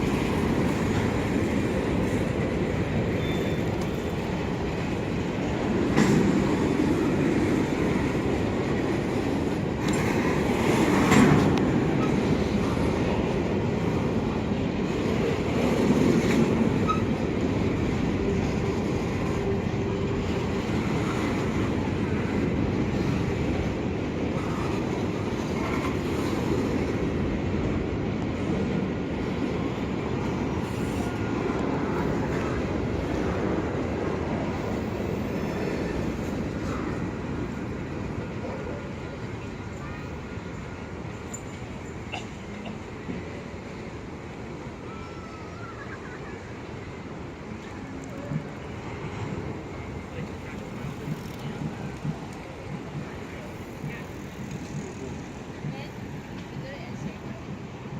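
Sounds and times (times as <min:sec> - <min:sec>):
train cars clanking: 0:00.0 - 0:57.9
train wheels rumbling on rails: 0:00.0 - 0:57.9.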